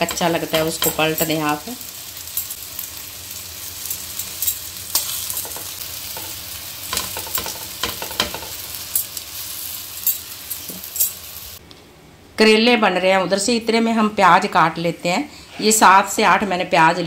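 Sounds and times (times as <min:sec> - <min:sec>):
food sizzling in hot oil: 0:00.0 - 0:11.6.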